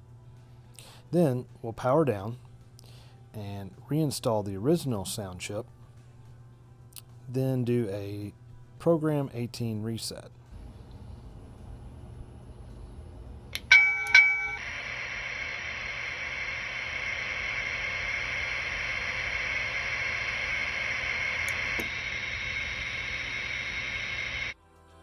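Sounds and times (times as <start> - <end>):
high hissing whine: 10.6 - 24.6
bell dings: 13.6 - 14.6.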